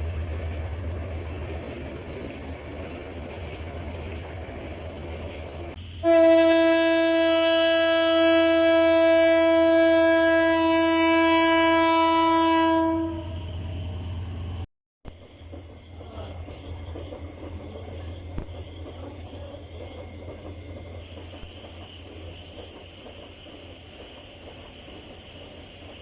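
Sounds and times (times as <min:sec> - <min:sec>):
train rumbling: 0:00.0 - 0:26.0
train horn long blast: 0:06.0 - 0:13.8.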